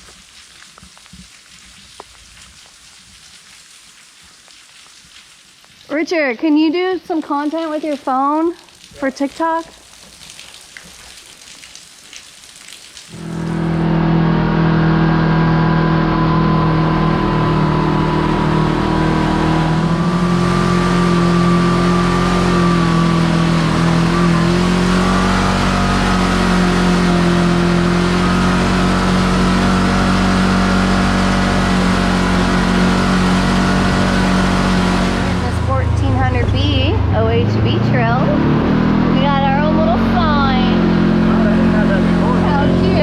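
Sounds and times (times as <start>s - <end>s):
vehicle engine running: 13.1s - 43.0s.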